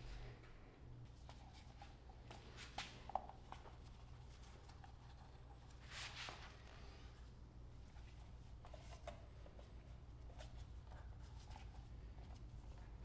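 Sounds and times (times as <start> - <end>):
low steady hum: 0.0 - 13.0
soft rustle: 1.1 - 13.0.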